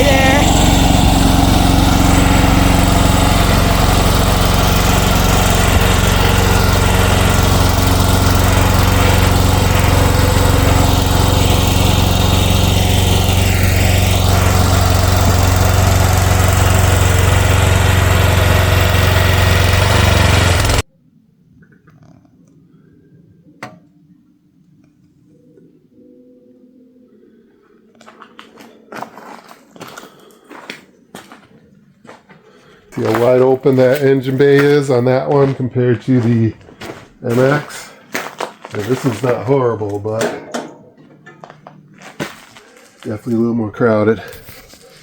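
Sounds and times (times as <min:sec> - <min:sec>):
excavator engine running: 0:00.0 - 0:20.9.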